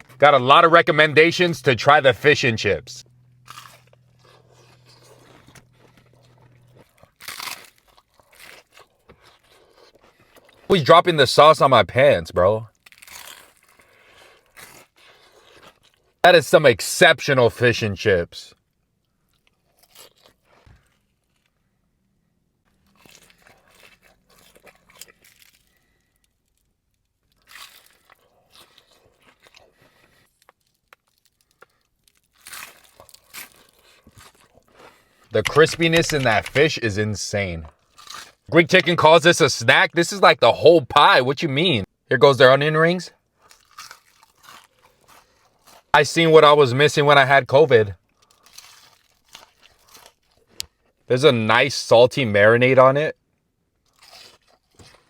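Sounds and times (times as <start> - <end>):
person chewing and crunching food: 0.0 - 10.8, 12.7 - 16.2, 19.0 - 21.7, 22.7 - 39.3, 43.2 - 47.1, 47.9 - 51.1, 53.8 - 55.0.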